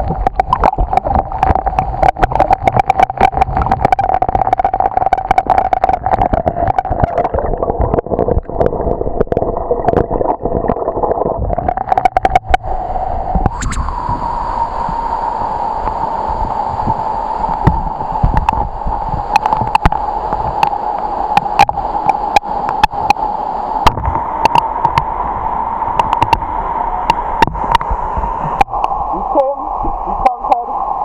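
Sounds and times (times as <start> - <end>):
sharp clicks and knocks: 0.0 - 10.1, 10.7 - 12.6, 17.5 - 23.2, 23.8 - 25.1, 26.0 - 27.9
waterfall roaring: 0.0 - 10.8, 11.4 - 30.9.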